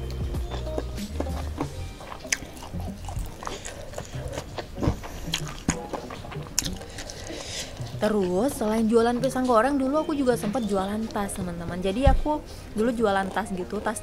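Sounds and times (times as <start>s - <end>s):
chewing crispy chicken: 0.0s - 8.4s.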